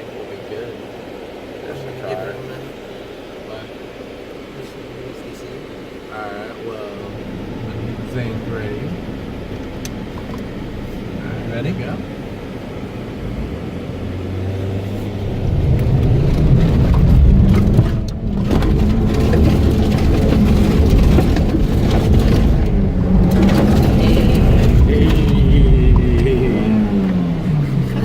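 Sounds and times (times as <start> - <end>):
van engine revving hard: 6.2 - 28.0.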